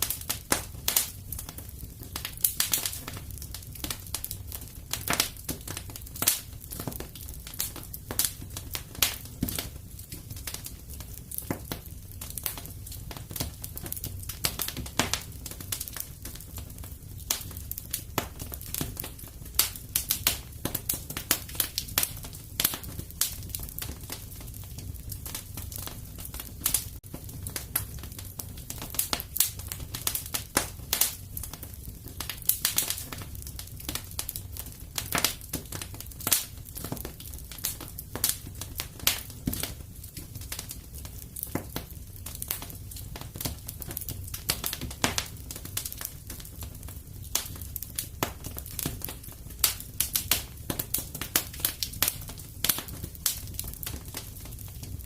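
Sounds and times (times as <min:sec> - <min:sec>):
low rumble of flames: 0:00.0 - 0:55.0
wood fire crackling: 0:00.0 - 0:55.0.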